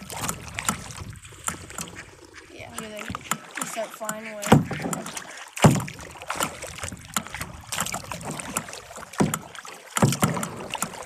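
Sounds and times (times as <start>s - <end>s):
paddle knocking against hull: 0.0s - 11.0s
paddle splashing in water: 0.0s - 11.0s.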